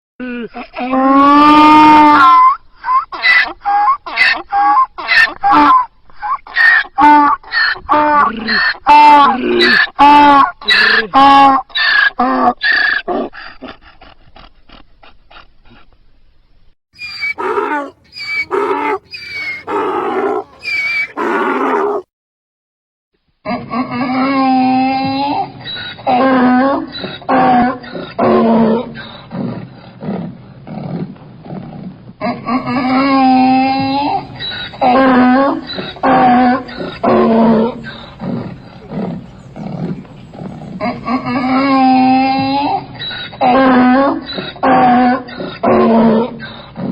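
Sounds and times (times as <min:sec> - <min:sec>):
donkey wheezing gasps: 0:17.0 - 0:22.0
donkey braying: 0:17.0 - 0:22.1, 0:32.4 - 0:46.2.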